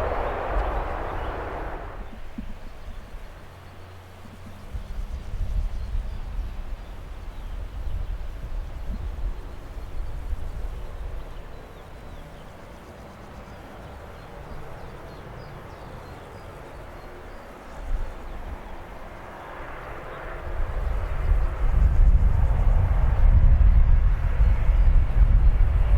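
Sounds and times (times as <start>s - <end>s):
low rumble: 0.0s - 2.4s
jet engine rushing: 0.0s - 2.6s.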